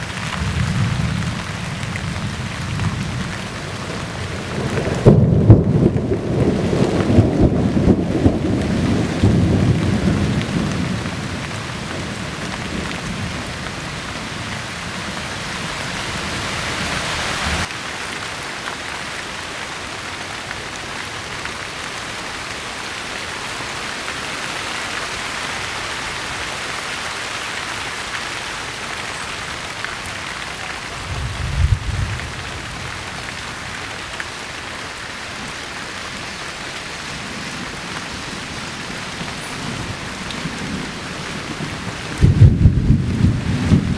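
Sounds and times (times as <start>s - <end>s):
steady rain hissing: 0.0s - 43.9s
thunder rumbling: 0.2s - 15.2s, 30.9s - 33.7s, 38.9s - 43.9s.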